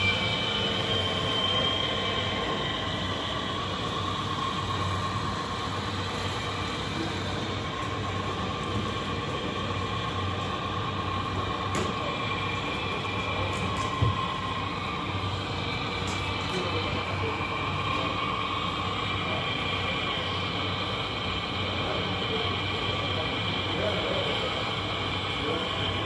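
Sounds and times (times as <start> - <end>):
higher whine: 0.0 - 6.3
electric motors and gears whining: 0.0 - 26.0.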